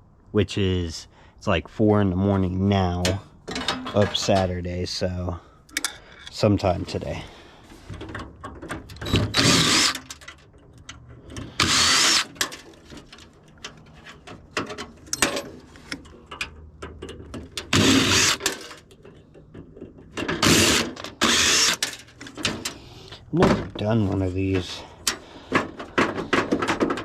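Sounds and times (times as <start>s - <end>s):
metal parts clicking and knocking: 7.9s - 23.8s, 24.5s - 27.0s
handheld power tool bursts: 8.9s - 10.4s, 11.3s - 12.6s, 17.6s - 18.9s, 20.2s - 22.8s.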